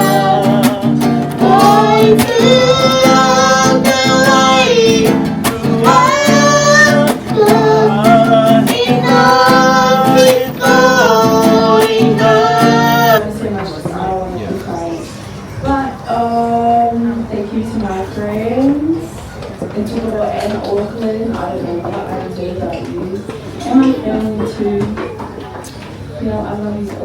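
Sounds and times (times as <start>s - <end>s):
women singing slow song: 0.0s - 13.4s
acoustic guitar: 0.0s - 13.8s.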